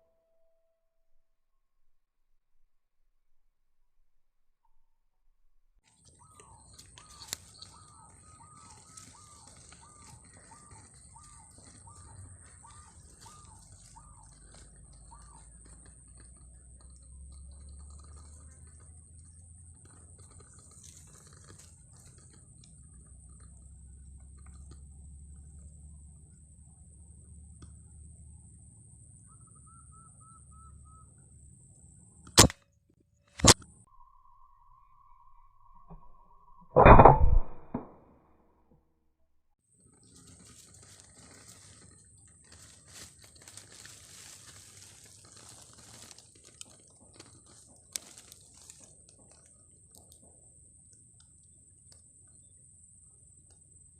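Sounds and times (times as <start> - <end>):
sharp click: 32.2 - 32.6, 33.3 - 33.7, 35.9 - 38.0
air rifle shots: 32.4 - 32.6
steady thin high tone: 33.8 - 37.7.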